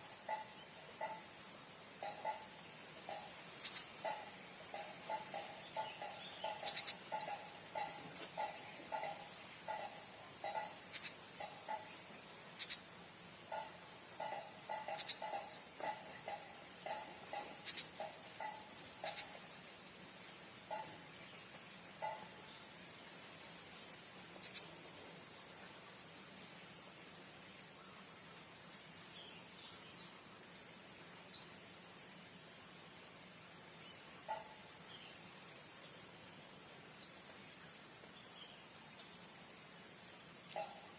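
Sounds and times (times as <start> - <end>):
insect trilling: 0.0 - 25.3
parrot chirps: 3.1 - 7.9, 10.4 - 11.8, 12.6 - 12.9, 14.2 - 15.6, 16.2 - 19.4, 24.4 - 24.7.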